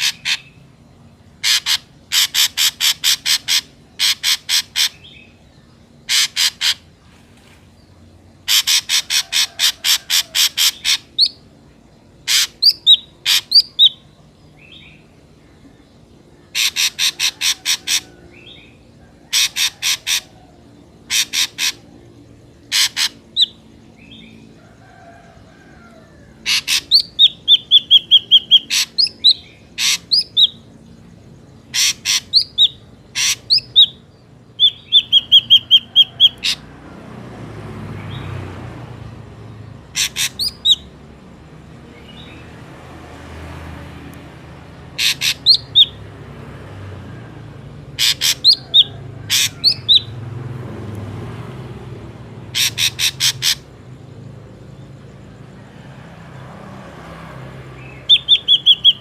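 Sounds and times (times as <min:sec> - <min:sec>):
bird harsh rasping calls and whistles: 0:00.0 - 0:07.0, 0:08.4 - 0:11.5, 0:12.2 - 0:15.5, 0:16.3 - 0:25.2, 0:25.8 - 0:36.8, 0:39.7 - 0:41.0, 0:44.6 - 0:46.1, 0:47.0 - 0:50.2, 0:52.4 - 0:55.1, 0:57.8 - 0:59.0.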